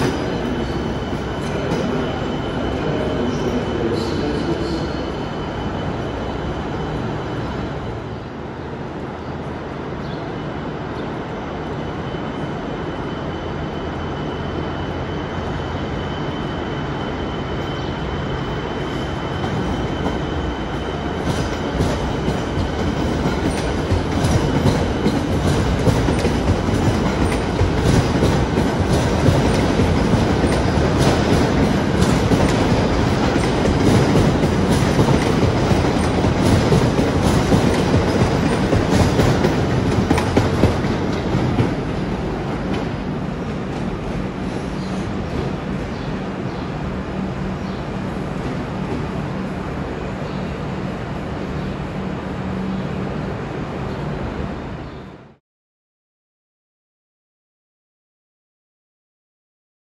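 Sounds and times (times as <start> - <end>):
electric train rumbling past: 0.0 - 55.4
train wheels clicking over rail joints: 21.1 - 45.6.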